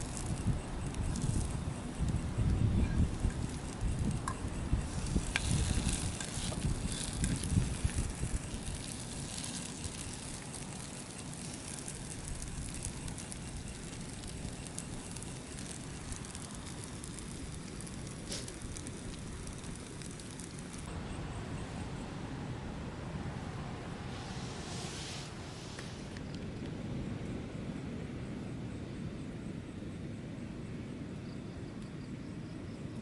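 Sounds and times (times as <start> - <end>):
campfire crackling and popping: 0.0 - 20.9
gusty wind rumbling: 0.0 - 29.5.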